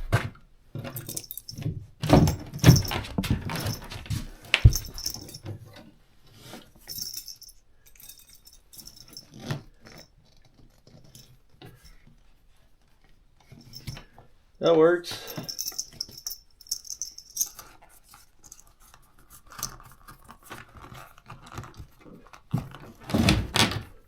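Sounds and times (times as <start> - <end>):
snowshoe jangling and clinking: 0.9 - 5.4, 6.8 - 10.1, 13.6 - 14.0, 15.2 - 17.7.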